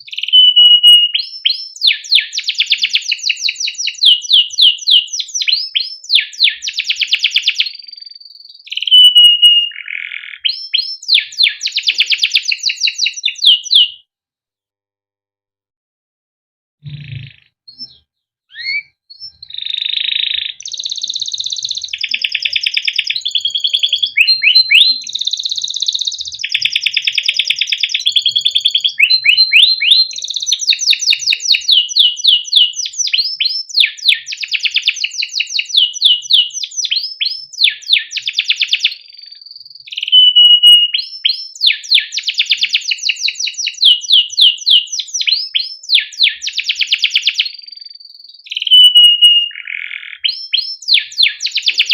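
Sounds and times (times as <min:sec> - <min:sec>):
canary singing trills: 0:00.0 - 0:14.0, 0:16.8 - 0:51.9
short bird calls: 0:00.0 - 0:14.0, 0:16.8 - 0:31.9, 0:43.2 - 0:51.9.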